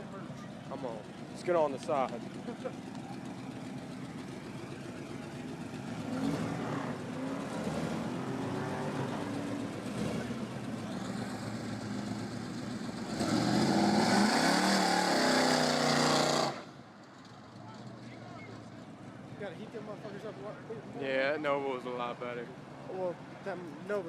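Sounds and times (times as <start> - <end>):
car engine revving: 0.8 - 18.2
tires spinning hiss: 13.2 - 16.7.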